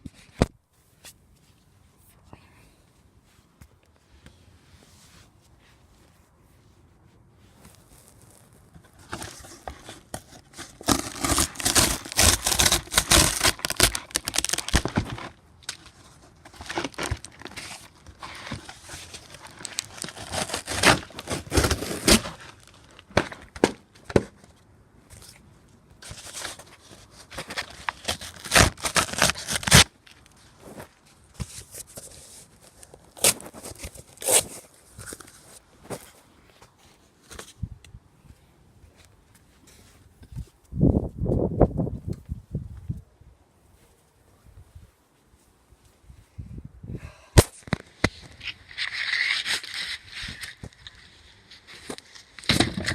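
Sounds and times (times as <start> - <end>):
cardboard box tearing and crumpling: 7.8 - 24.3, 26.0 - 30.0, 30.6 - 36.1, 48.0 - 52.9.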